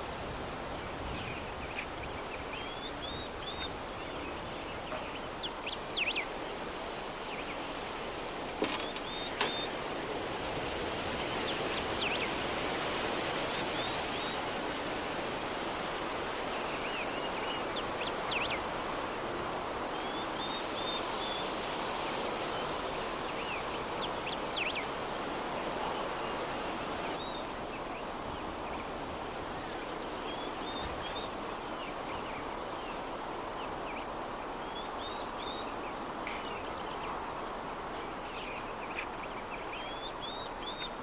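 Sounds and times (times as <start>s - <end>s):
soft breeze: 0.0s - 41.0s
small birds chirping: 1.0s - 10.0s.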